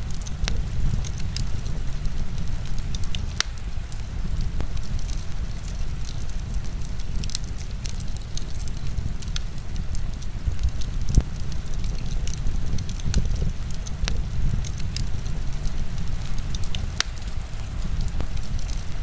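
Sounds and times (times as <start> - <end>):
wood fire crackling and popping: 0.0 - 19.0
heavy rain: 12.3 - 19.0.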